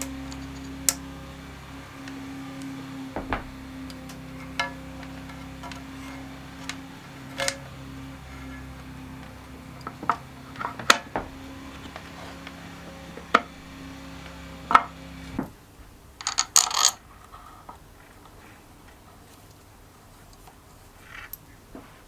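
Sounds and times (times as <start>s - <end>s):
tools and metal parts clicking: 0.0s - 1.0s, 3.2s - 7.7s, 16.2s - 17.0s
background music with held tones: 0.0s - 16.4s
metal clatter: 2.6s - 13.7s.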